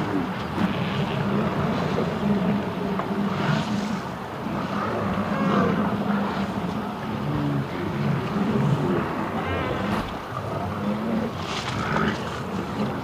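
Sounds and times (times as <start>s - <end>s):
low motor drone: 0.0s - 13.0s
water noise: 0.0s - 13.0s
wind: 0.0s - 13.0s.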